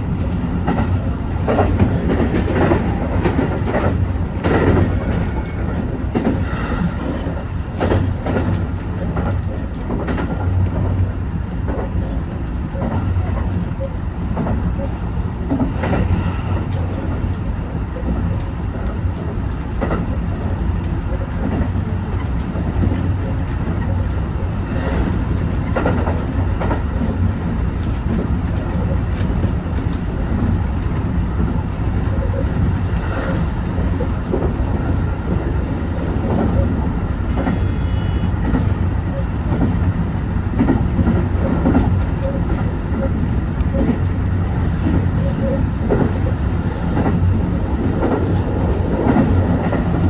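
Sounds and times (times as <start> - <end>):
wheels clunking over rail joints: 0.0 - 11.1
train rumbling on track: 0.0 - 50.0.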